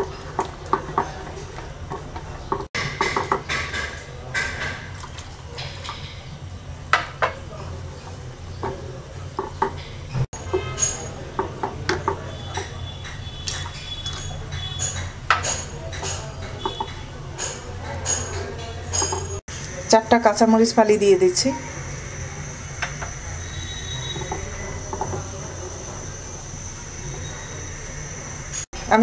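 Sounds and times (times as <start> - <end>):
metal spoon clinking against pot: 9.4 - 19.4.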